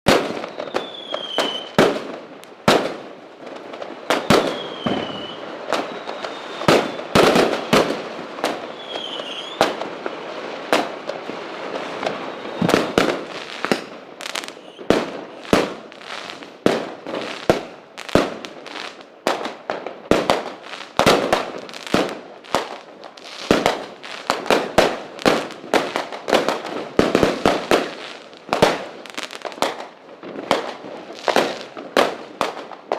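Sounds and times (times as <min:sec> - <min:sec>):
falling firework whistles: 0:00.1 - 0:02.0, 0:04.0 - 0:09.8, 0:11.7 - 0:16.5
fireworks and firecrackers banging: 0:00.1 - 0:32.9.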